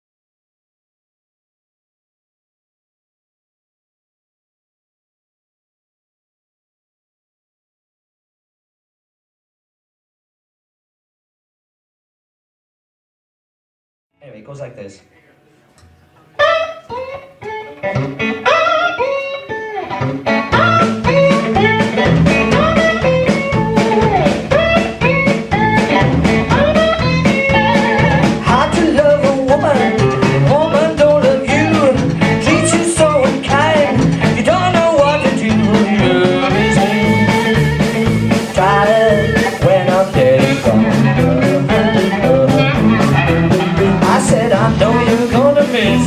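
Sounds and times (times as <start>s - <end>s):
live blues band playing: 15.6s - 46.0s
person singing: 20.4s - 46.0s.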